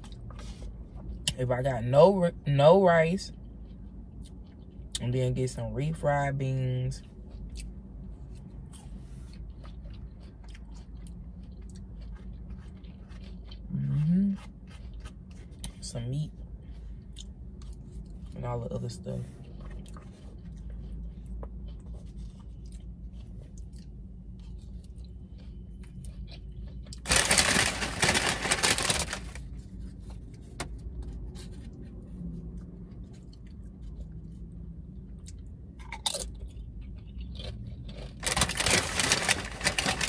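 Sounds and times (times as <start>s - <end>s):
close-up chewing and mouth sounds: 0.0s - 1.4s, 2.6s - 40.0s
steady low hum: 0.0s - 40.0s
loud crunching: 26.8s - 29.5s, 37.2s - 40.0s.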